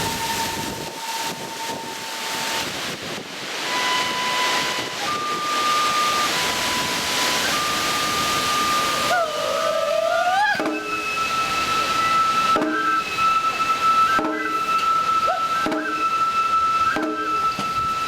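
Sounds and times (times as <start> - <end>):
wind buffeting microphone: 0.0 - 13.9
bamboo flute playing held notes: 0.0 - 18.0.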